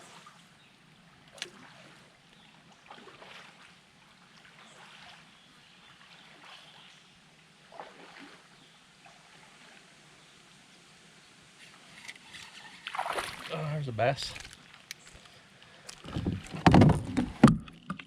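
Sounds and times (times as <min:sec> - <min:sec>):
water lapping around canoe: 0:00.0 - 0:10.4, 0:11.6 - 0:13.7, 0:15.2 - 0:18.0
soft knocks on canoe: 0:16.0 - 0:17.8.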